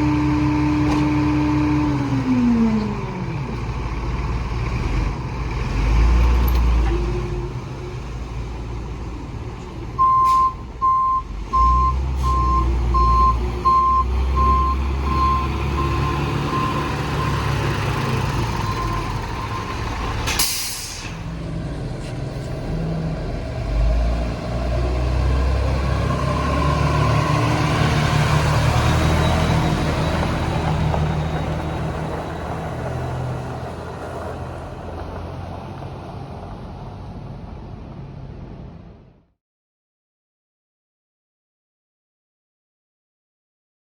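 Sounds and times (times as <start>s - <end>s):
garbage truck diesel engine: 0.0s - 39.3s
reversing alarm beeping: 10.0s - 17.6s
air-brake hiss: 20.3s - 21.3s.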